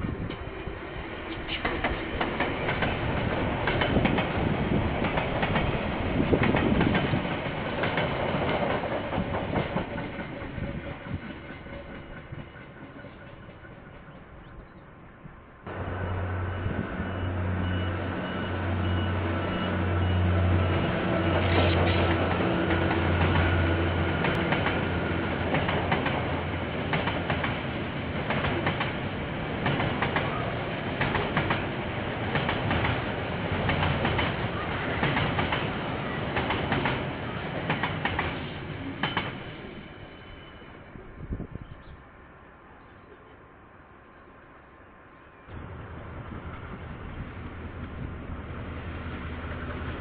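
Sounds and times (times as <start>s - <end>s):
diesel locomotive engine droning: 0.0s - 50.0s
train wagons clickety-clack: 1.2s - 14.9s, 16.7s - 40.7s.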